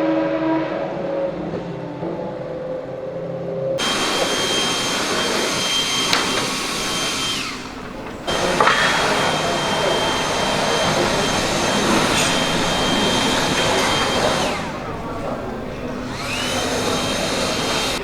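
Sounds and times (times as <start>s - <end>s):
air blower whooshing with whine: 3.8s - 18.0s.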